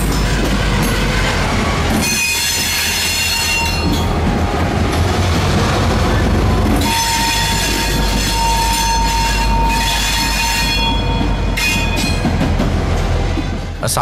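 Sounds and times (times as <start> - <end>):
locomotives rumbling past: 0.0 - 14.0
high-pitched wheel squeal: 6.8 - 12.2.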